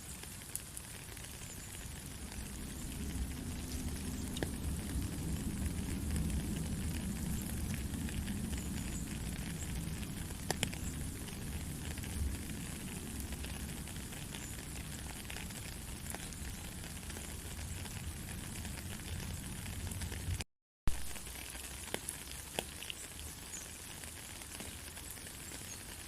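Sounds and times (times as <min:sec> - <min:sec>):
steady rain patter: 0:00.0 - 0:26.0.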